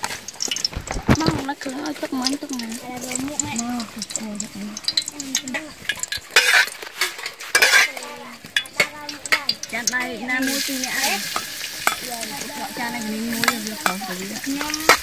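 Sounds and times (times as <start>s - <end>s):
garlic sizzling in oil: 0.0s - 15.0s
metal spatula scraping a wok: 4.8s - 15.0s.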